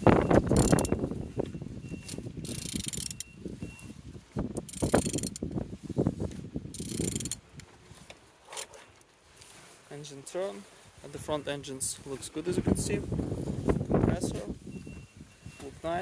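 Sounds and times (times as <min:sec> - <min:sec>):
engine internals clicking and knocking: 0:00.4 - 0:01.0
wrench ratchet rasping: 0:00.5 - 0:00.9, 0:02.4 - 0:03.3, 0:04.6 - 0:05.4, 0:06.7 - 0:07.4.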